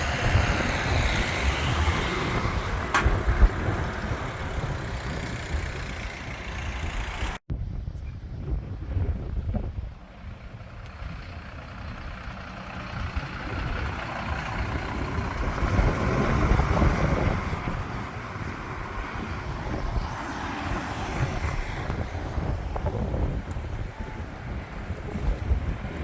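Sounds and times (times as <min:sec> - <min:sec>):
heavy truck driving past: 0:10.1 - 0:23.4.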